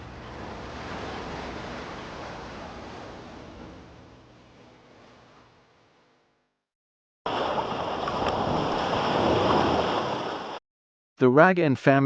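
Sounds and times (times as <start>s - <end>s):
rush of wind and water: 0.0s - 4.2s, 7.3s - 10.6s.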